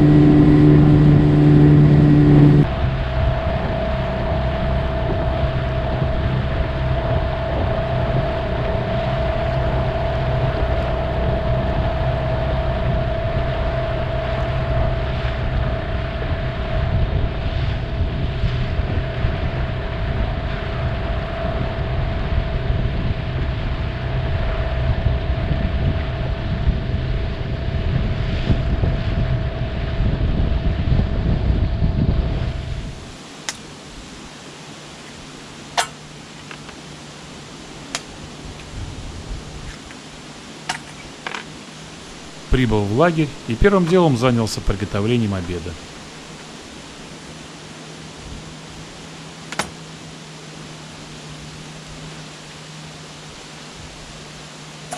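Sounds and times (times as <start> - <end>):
wind noise on microphone: 0.0 - 34.3, 38.0 - 41.2
motorboat engine droning: 0.0 - 54.9.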